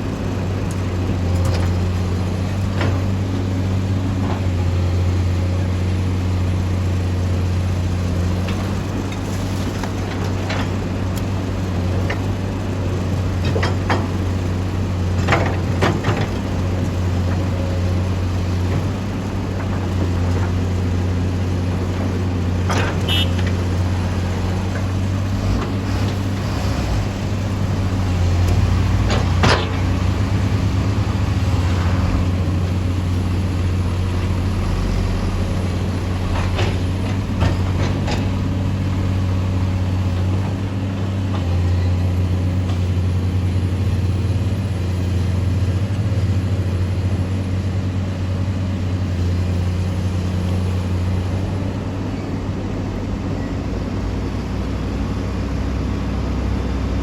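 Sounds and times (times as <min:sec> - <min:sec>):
excavator diesel engine humming: 0:00.0 - 0:57.0.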